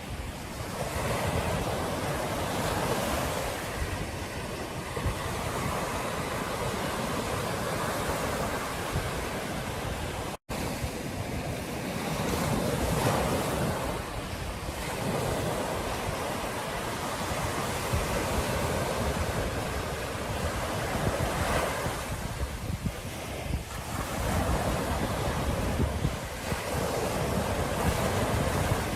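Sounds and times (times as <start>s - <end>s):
ocean surf washing onto beach: 0.0s - 28.9s
wind buffeting microphone: 0.0s - 28.9s.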